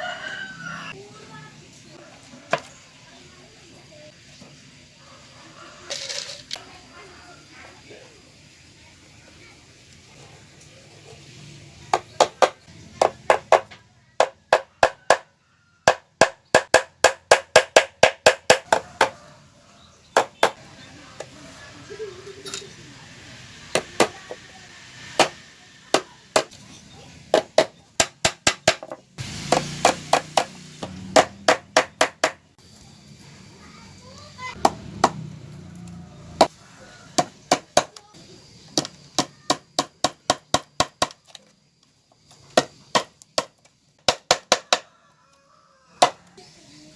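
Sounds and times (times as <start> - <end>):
hammer striking wood: 12.0 - 15.3, 15.9 - 19.2, 20.2 - 20.6, 25.2 - 26.5, 27.3 - 32.4, 37.2 - 37.9, 44.1 - 44.8.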